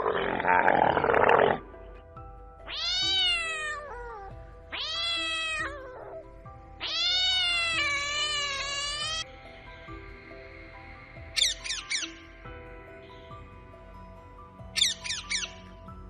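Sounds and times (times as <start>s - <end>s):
soft background music: 0.0s - 16.0s
cat meowing: 2.7s - 9.2s.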